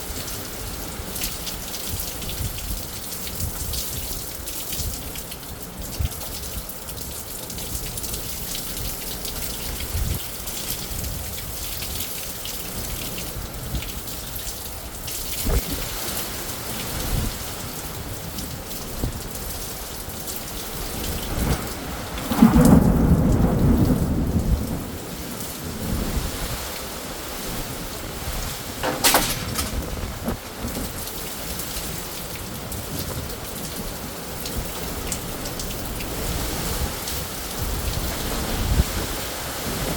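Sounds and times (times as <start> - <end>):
steady rain falling: 0.0 - 39.9
thunder rumbling: 21.4 - 25.1, 28.7 - 31.4.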